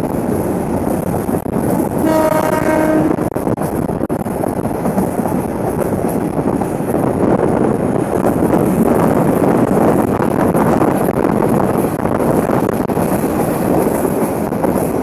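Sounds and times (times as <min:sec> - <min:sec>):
train running on tracks: 0:00.0 - 0:15.0
train horn: 0:02.0 - 0:03.3.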